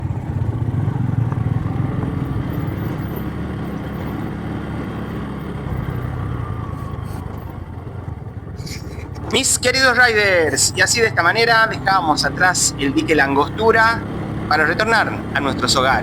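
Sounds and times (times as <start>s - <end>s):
motorcycle engine running: 0.0s - 16.0s
road and wind noise: 0.0s - 16.0s.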